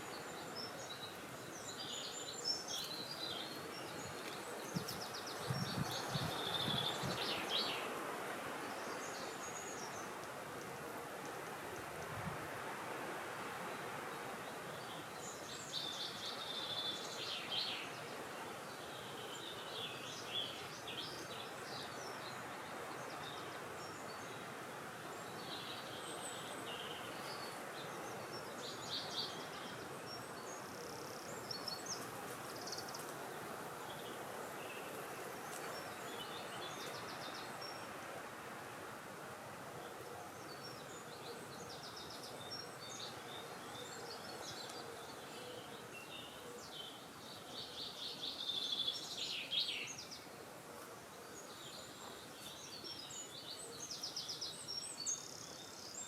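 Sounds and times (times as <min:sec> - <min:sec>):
small birds chirping: 0:00.0 - 0:10.3, 0:39.8 - 0:56.0
wind hiss: 0:00.0 - 0:45.0.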